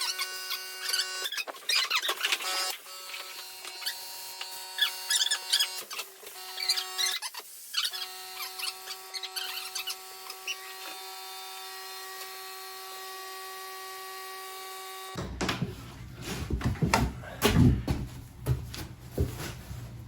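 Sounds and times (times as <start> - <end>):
electric drill motor whine: 2.3 - 7.1.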